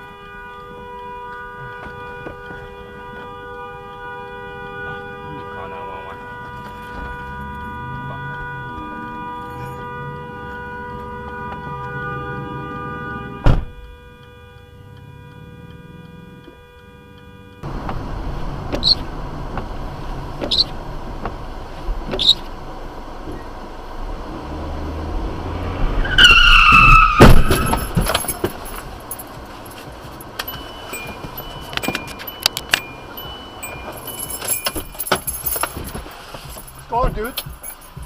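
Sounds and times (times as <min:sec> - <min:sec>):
road noise: 0:00.0 - 0:38.0
car tyres squealing: 0:17.6 - 0:38.0
loud crash impact: 0:26.7 - 0:28.6.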